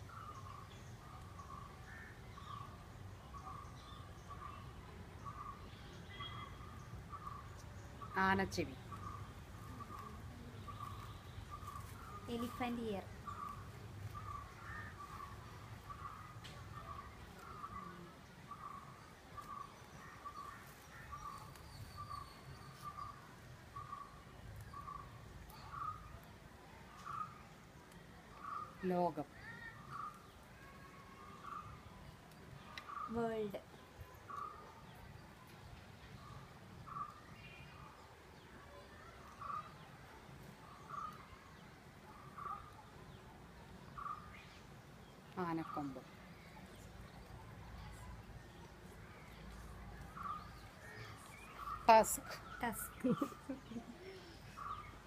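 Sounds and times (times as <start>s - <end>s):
faint outdoor background noise: 0.0s - 55.0s
bird calling: 5.3s - 23.2s, 49.2s - 55.0s.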